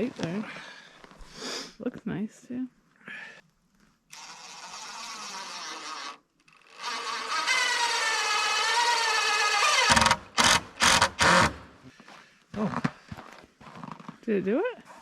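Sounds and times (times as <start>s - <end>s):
power drill driving screw into wood: 4.1s - 11.7s.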